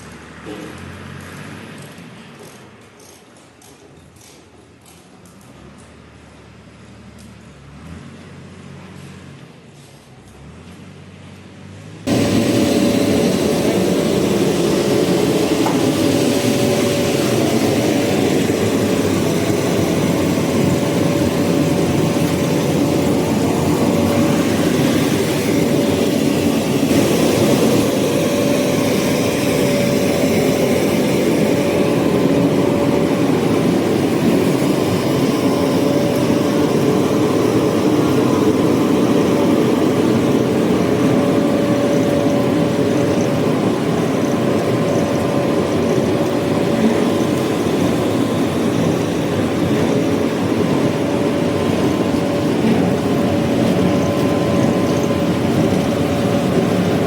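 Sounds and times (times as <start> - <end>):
constant high tone: 12.1 - 57.0
machinery humming: 12.1 - 57.0.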